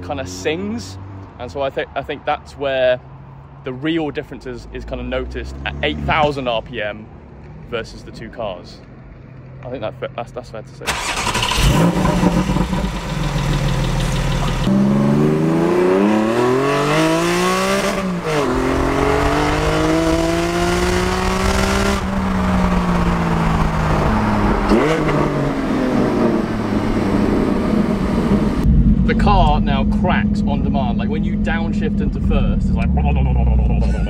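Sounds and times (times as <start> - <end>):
car engine revving: 4.8 - 6.5, 10.9 - 34.0.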